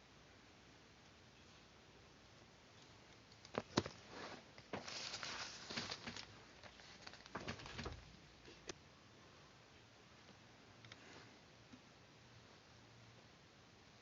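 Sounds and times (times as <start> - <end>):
paper rustling: 3.5 - 8.1.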